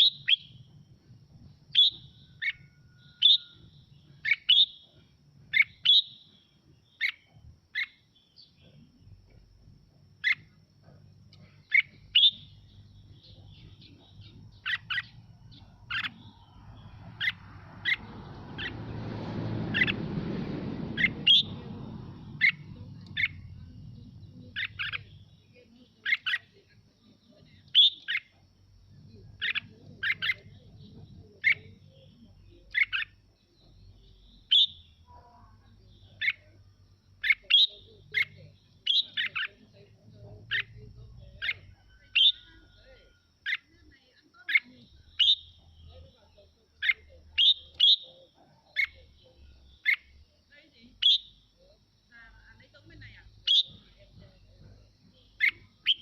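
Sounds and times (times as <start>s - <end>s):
bulbul singing: 0.0s - 56.0s
rushing noise: 16.6s - 23.6s.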